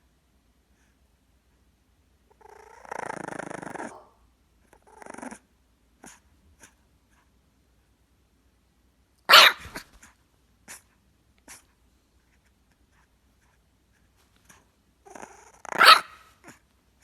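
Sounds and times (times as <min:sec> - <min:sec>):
dog barking: 0:09.3 - 0:09.9, 0:15.8 - 0:16.2.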